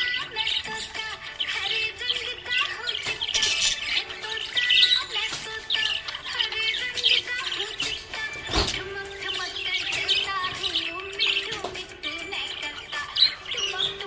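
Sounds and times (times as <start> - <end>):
background music: 0.0 - 14.0
budgerigars chirping and warbling: 0.0 - 14.0.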